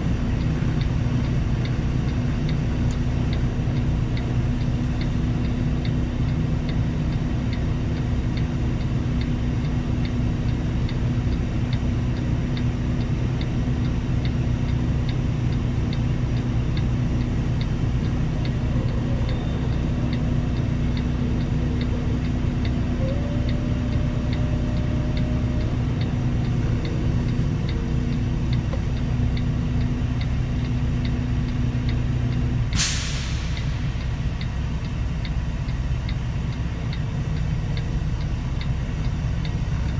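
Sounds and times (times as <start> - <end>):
diesel truck engine running: 0.0 - 39.9
faint regular ticking: 0.1 - 32.6, 33.6 - 39.9
air brakes hissing: 32.7 - 34.3.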